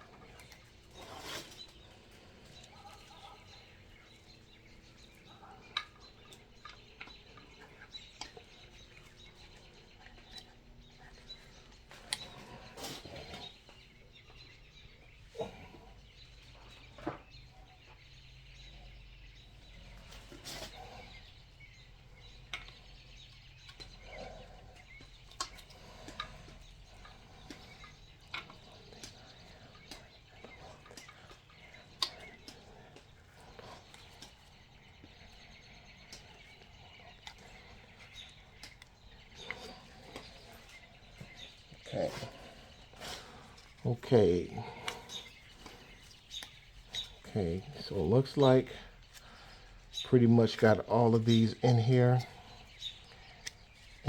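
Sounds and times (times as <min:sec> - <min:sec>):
faint steady background noise: 0:00.0 - 0:54.0.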